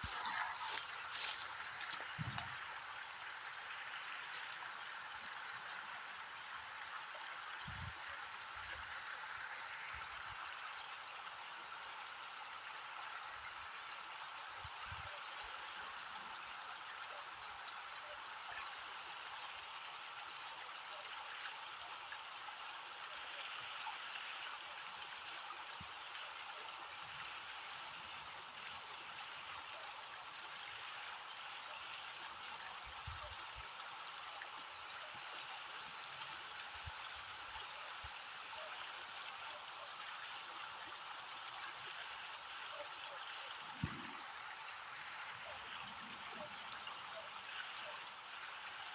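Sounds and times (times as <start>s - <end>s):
faint ticks: 4.0s - 5.8s.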